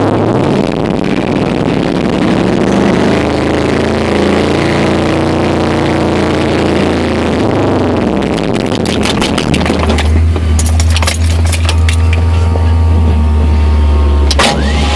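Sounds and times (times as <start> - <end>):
engine running on choke: 0.0 - 14.9.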